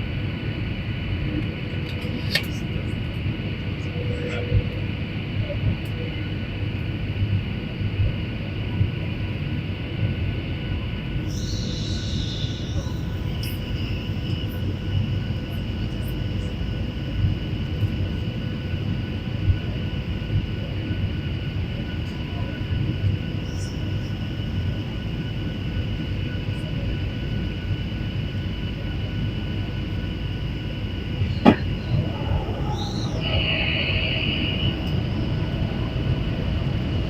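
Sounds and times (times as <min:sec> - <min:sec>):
airliner engine rumble: 0:00.0 - 0:37.0
faint steady whine: 0:00.0 - 0:37.0.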